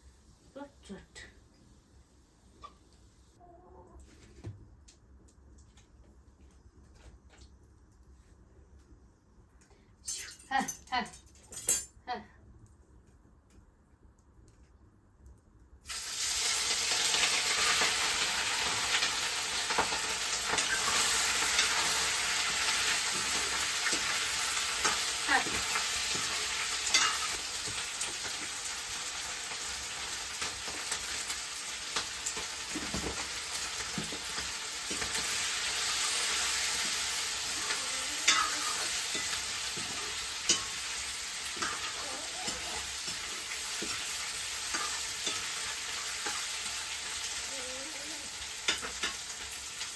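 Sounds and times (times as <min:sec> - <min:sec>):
meat sizzling in hot oil: 0:15.8 - 0:49.9.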